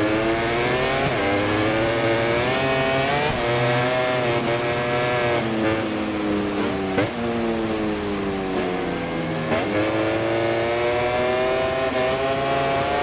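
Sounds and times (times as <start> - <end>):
racing motorcycle engine: 0.0 - 13.0.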